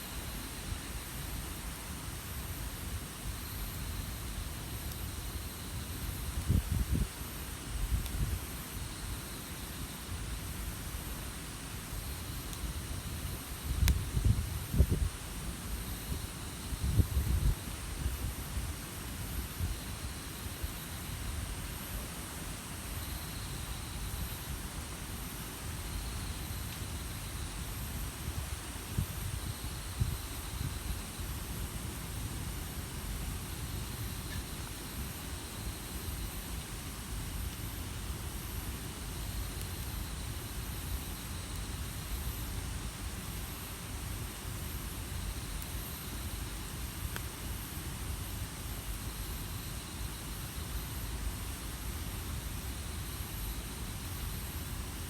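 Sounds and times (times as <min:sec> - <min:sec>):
campfire burning and popping: 0:12.5 - 0:14.7.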